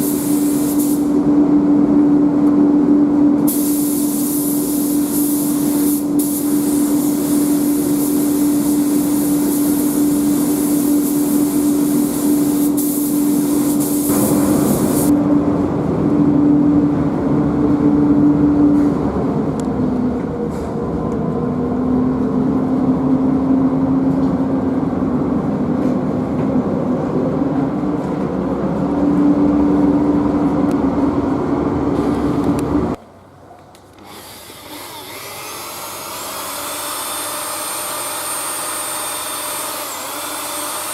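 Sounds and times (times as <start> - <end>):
air spray gun hissing: 0.0 - 1.2, 3.5 - 15.1
steady machine hum: 0.0 - 3.5, 4.6 - 33.0.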